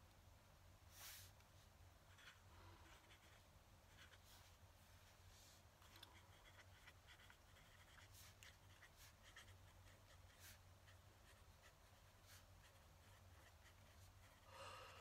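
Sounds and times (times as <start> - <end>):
pen nib scratching on paper: 2.1 - 4.2, 5.8 - 14.5.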